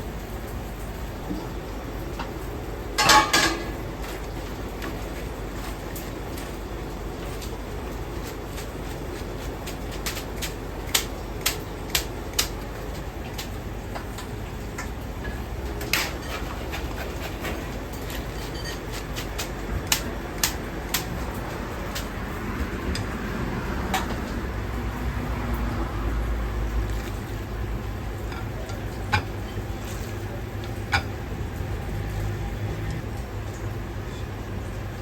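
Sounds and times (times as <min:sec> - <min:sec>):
low kitchen rumble: 0:00.0 - 0:35.0
utensils and cookware clacking: 0:03.0 - 0:06.1, 0:13.4 - 0:22.1, 0:26.9 - 0:31.6.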